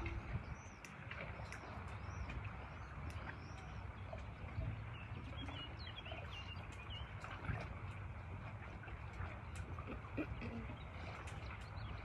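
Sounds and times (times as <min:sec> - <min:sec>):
steady low rumble: 0:00.0 - 0:12.0
small birds chirping: 0:00.3 - 0:07.6.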